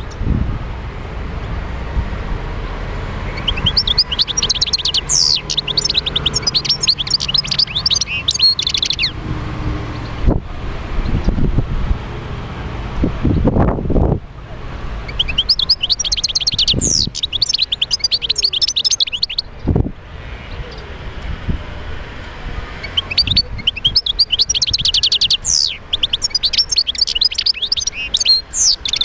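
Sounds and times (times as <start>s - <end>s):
goldfinch twittering song: 0.0s - 0.2s, 3.2s - 9.2s, 15.0s - 19.7s, 22.8s - 29.0s.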